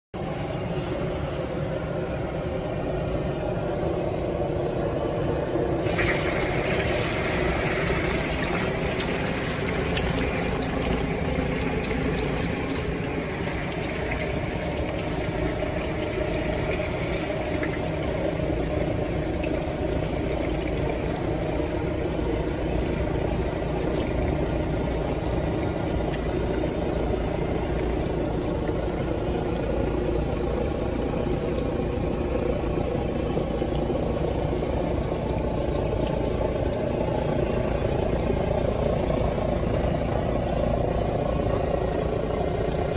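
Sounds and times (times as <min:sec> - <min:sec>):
steady low hum: 0:00.2 - 0:42.9
egg sizzling in hot oil: 0:05.8 - 0:18.7.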